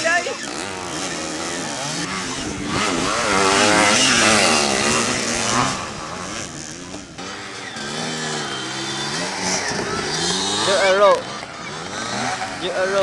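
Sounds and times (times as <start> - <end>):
dirt bikes revving: 0.0 - 13.0.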